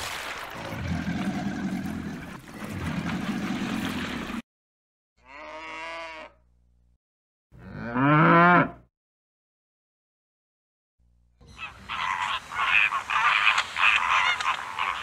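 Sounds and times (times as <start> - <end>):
cattle mooing: 5.2 - 6.4, 7.6 - 8.8.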